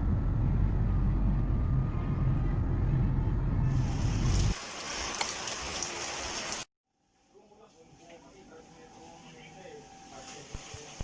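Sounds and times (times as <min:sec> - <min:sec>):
loud low rumble: 0:00.0 - 0:04.6
rain hissing: 0:03.7 - 0:06.7.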